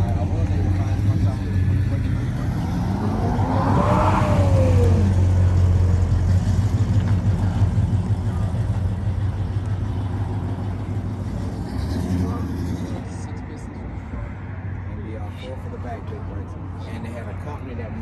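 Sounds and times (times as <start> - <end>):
car engine revving: 0.0 - 13.6
low engine rumble: 0.0 - 18.0.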